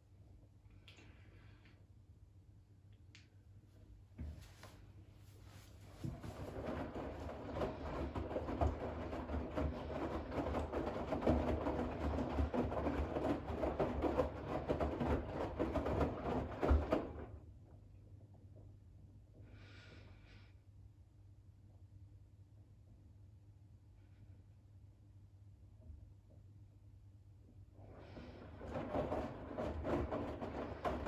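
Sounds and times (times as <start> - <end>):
washing machine drum tumbling: 6.0 - 17.4, 28.0 - 31.0.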